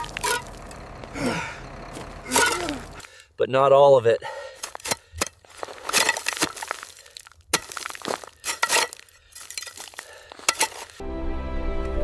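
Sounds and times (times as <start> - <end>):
ice cracking and clinking: 0.0 - 0.9, 4.6 - 11.0.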